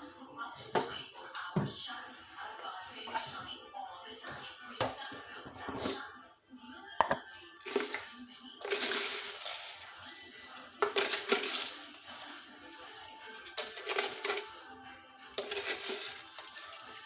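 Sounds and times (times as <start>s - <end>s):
background music: 0.0s - 17.0s
kitchen utensils and cups clinking: 0.6s - 1.8s, 3.0s - 3.5s, 4.3s - 6.0s, 7.0s - 14.7s, 15.3s - 17.0s.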